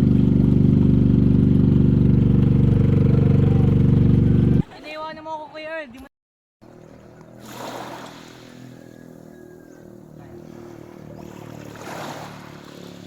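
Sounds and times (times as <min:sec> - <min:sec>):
waves washing onto beach: 0:06.7 - 0:09.1, 0:10.2 - 0:13.0.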